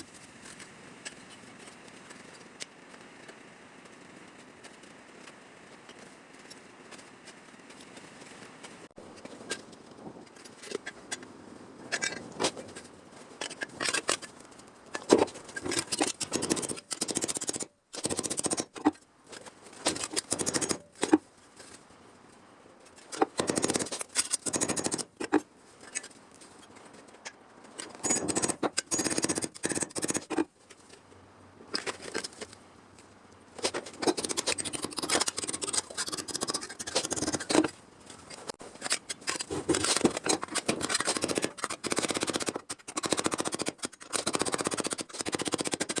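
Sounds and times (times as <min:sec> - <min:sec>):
metal snipping: 0:33.6 - 0:46.0.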